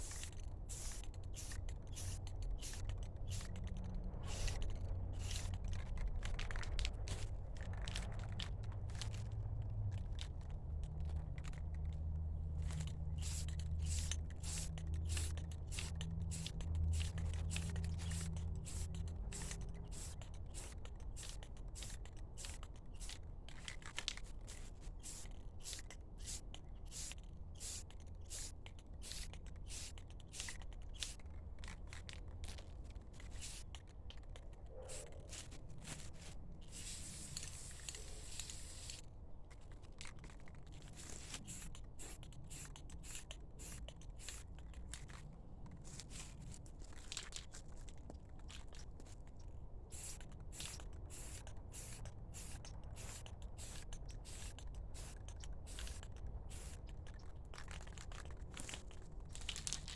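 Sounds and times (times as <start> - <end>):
low steady hum: 0.0 - 23.8.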